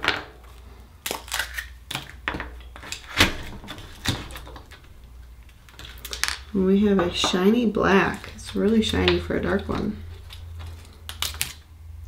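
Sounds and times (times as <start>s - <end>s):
shell cracking: 1.0s - 6.5s, 10.1s - 11.7s.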